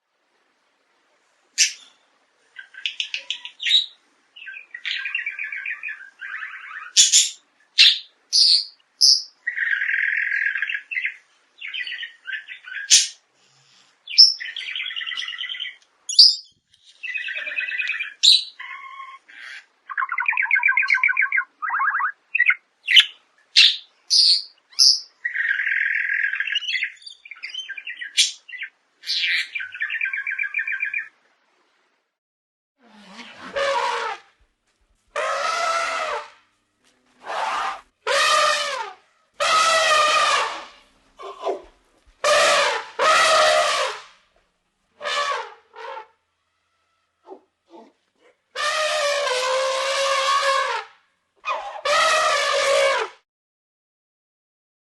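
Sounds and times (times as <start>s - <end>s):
birds chirping: 1.6s - 13.2s, 14.0s - 31.2s.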